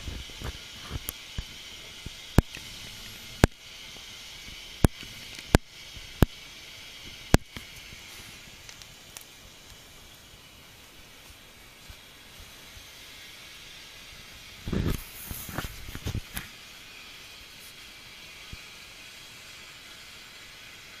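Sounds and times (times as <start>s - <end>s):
sharp pops: 0.0s - 9.9s, 14.6s - 16.7s
stove flames hissing: 0.0s - 21.0s.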